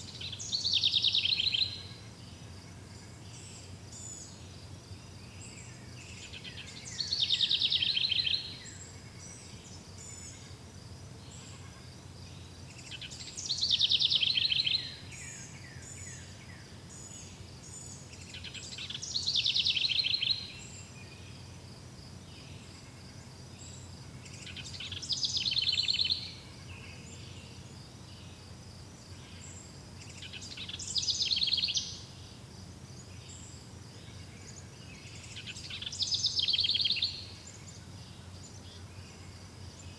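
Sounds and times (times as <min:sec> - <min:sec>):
songbird trilling: 0:30.2 - 0:32.1.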